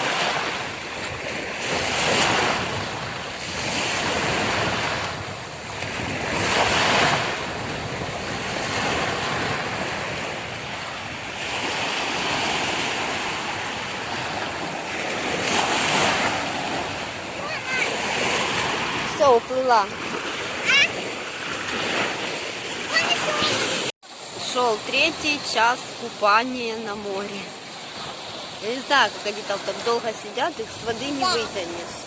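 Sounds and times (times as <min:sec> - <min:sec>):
wind on microphone: 0:00.0 - 0:23.9
sea waves breaking: 0:00.0 - 0:32.0.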